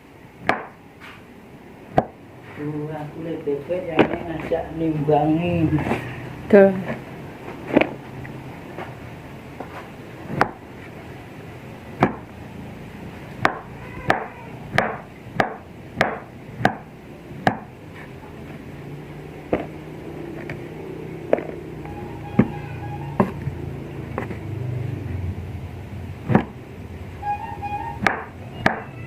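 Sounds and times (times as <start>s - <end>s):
knife chopping on cutting board: 0.4s - 0.8s, 12.0s - 12.3s, 13.4s - 17.7s, 28.0s - 28.9s.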